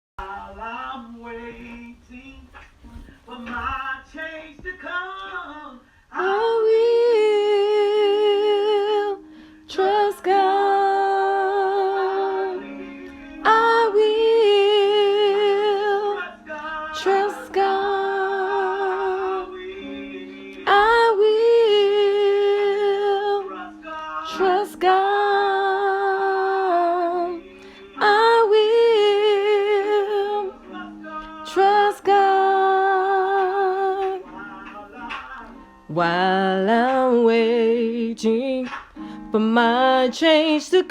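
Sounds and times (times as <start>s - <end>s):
soft instrumental accompaniment: 0.2s - 40.9s
woman singing with vibrato: 6.2s - 34.3s, 35.9s - 38.7s.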